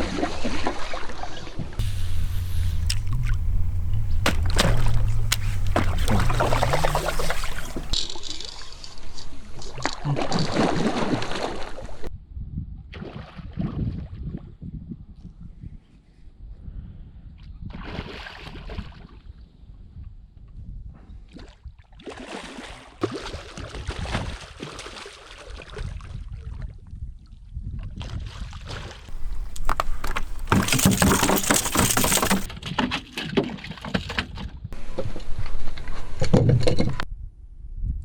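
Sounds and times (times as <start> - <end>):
water splashing: 1.8 - 8.0, 29.1 - 32.5
wind noise on microphone: 1.8 - 8.0.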